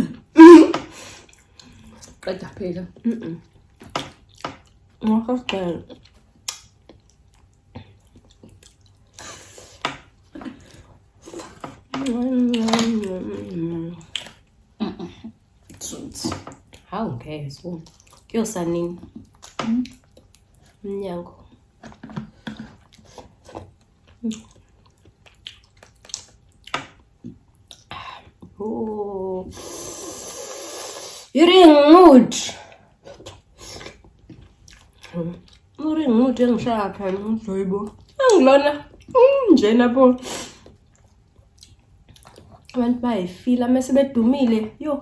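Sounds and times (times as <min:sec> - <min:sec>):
close-miked chewing and smacking: 0:03.4 - 0:14.7, 0:16.5 - 0:16.9, 0:17.6 - 0:20.8, 0:21.5 - 0:28.6, 0:32.7 - 0:35.8, 0:40.6 - 0:42.8
wet eating clicks and squishes: 0:05.9 - 0:09.2, 0:21.9 - 0:27.9, 0:40.7 - 0:42.8.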